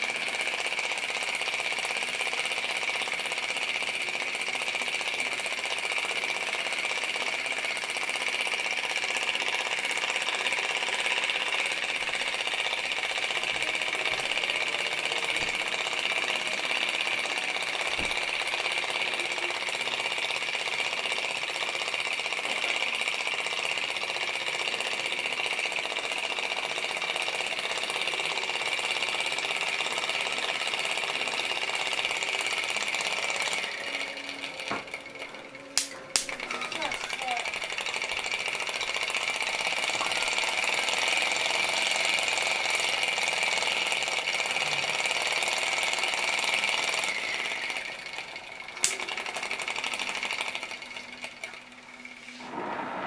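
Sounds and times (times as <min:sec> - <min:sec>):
model engine clattering: 0:00.0 - 0:52.3.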